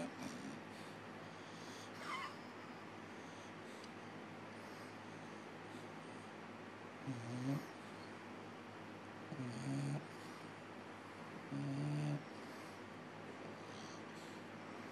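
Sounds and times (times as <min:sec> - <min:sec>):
dog snoring: 0:00.0 - 0:02.4, 0:07.0 - 0:08.1, 0:09.3 - 0:10.4, 0:11.4 - 0:12.8, 0:13.4 - 0:14.4.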